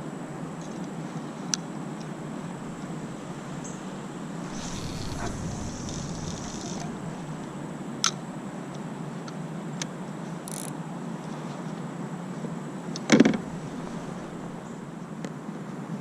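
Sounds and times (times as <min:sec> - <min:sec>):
steady low hiss: 0:00.0 - 0:09.6, 0:12.7 - 0:15.2.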